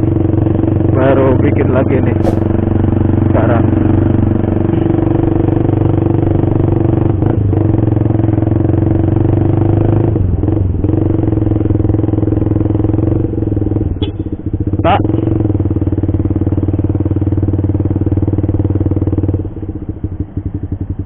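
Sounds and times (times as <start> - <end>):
motorcycle exhaust note: 0.0 - 21.0.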